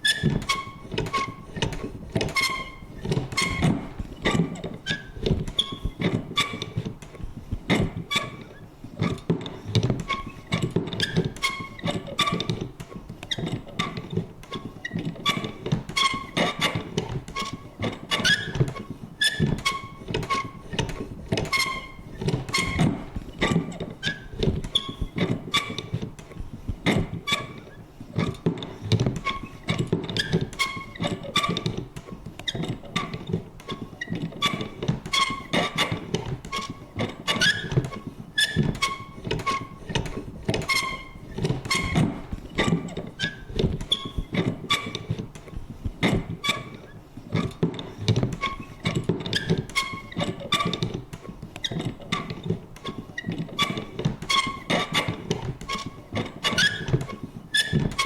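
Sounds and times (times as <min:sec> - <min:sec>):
paper punch clicking and creaking: 0:00.0 - 0:58.0.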